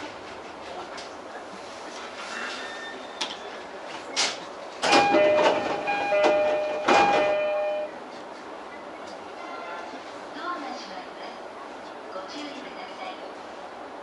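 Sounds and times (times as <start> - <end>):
train doors opening: 1.8 - 10.2
two-note door chime: 4.9 - 7.9.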